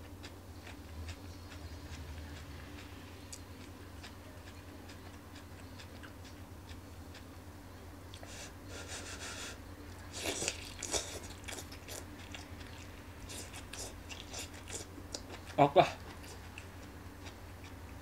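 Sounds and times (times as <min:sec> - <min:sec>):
crunchy biting and chewing: 0:10.1 - 0:18.0.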